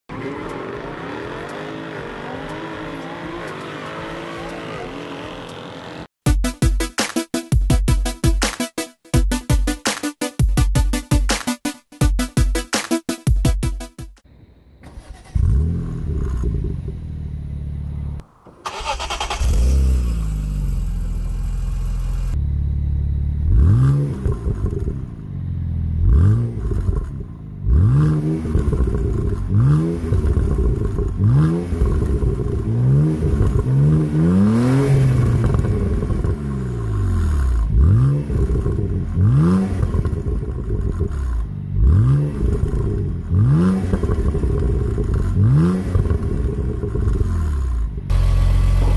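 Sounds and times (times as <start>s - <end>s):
car engine starting and revving: 0.1s - 6.1s, 14.8s - 48.9s.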